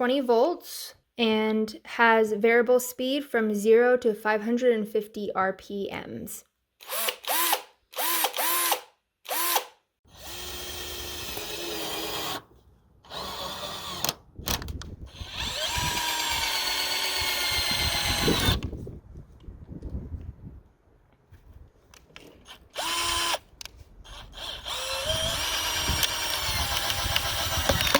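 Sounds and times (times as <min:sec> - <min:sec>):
cordless drill motor running: 0:06.8 - 0:14.2, 0:15.0 - 0:18.8, 0:22.4 - 0:27.9.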